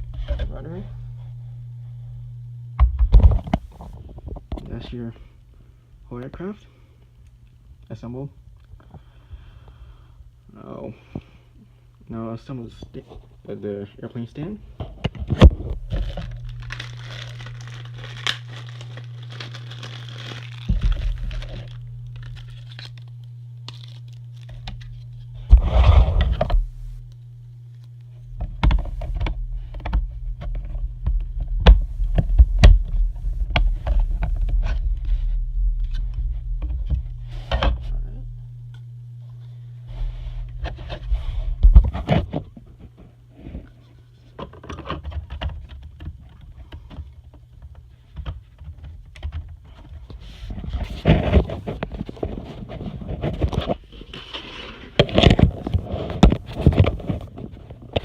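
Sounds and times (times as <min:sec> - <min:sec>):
steady low hum: 0:00.0 - 0:58.0
packaging rustling: 0:15.4 - 0:25.2
plastic parts clicking and knocking: 0:44.4 - 0:50.0.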